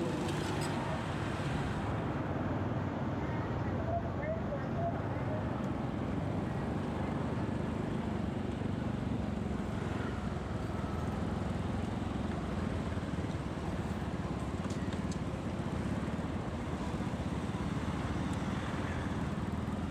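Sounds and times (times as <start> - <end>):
motorcycle engine running: 0.0 - 1.9
road noise: 0.0 - 19.9.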